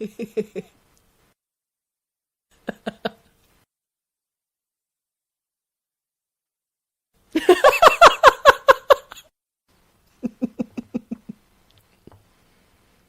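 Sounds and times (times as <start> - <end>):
woman laughing: 0.0 - 0.7, 2.6 - 3.3, 7.4 - 9.3, 10.2 - 11.4.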